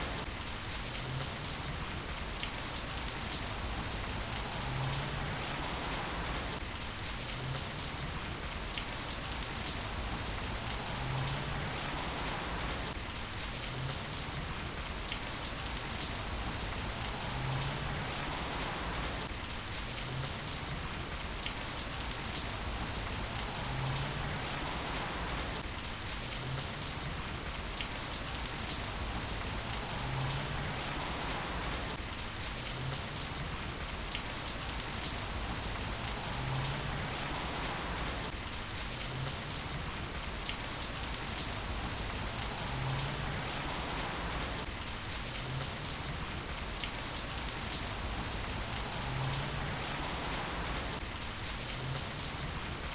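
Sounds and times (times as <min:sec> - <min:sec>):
heavy rain hiss: 0:00.0 - 0:52.9
rain drop ticks: 0:46.8 - 0:51.0.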